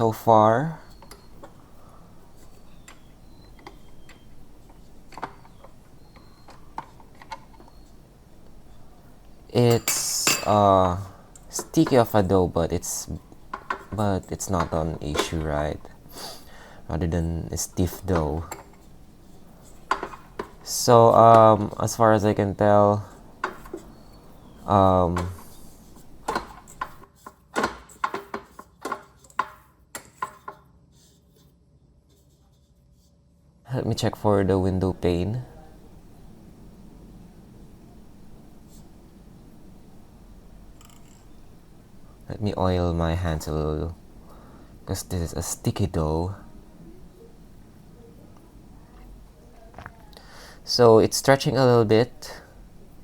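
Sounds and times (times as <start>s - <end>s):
metal and plastic clicks and knocks: 2.8s - 7.9s, 13.5s - 15.5s, 19.9s - 20.7s, 26.2s - 30.6s.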